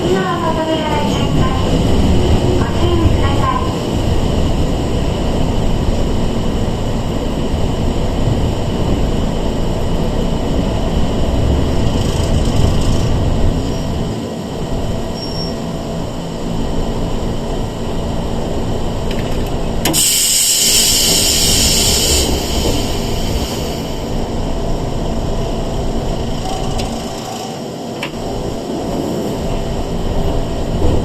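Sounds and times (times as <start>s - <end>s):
train wheels and motors rumbling: 0.0s - 31.0s
loud hiss: 19.9s - 24.2s.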